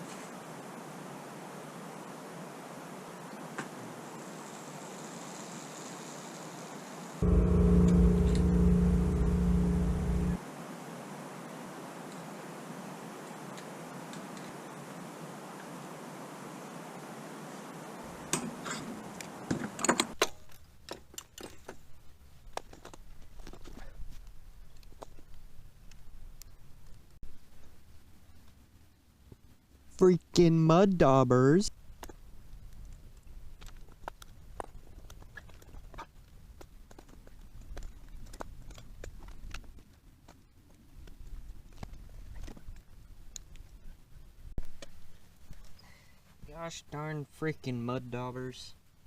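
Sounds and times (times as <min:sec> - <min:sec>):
low steady hum: 0:07.2 - 0:10.4.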